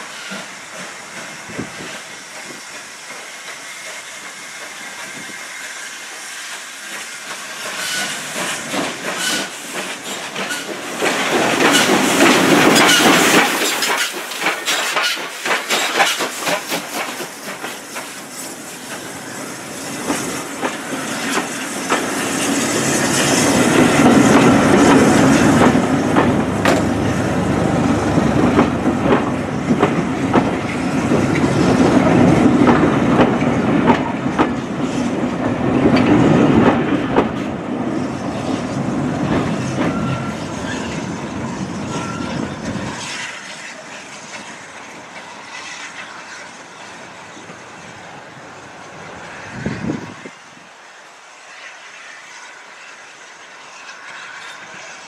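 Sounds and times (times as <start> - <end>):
train wheels clattering over rail joints: 6.5 - 27.2, 27.9 - 37.7.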